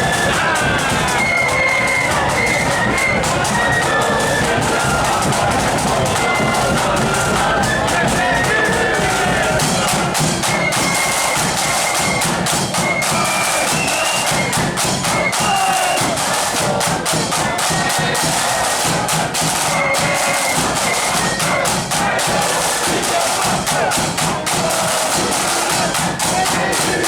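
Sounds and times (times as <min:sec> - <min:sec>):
bass drum: 0:00.0 - 0:10.9
high flute melody: 0:00.0 - 0:27.0
rapid snare drumming: 0:00.0 - 0:27.0.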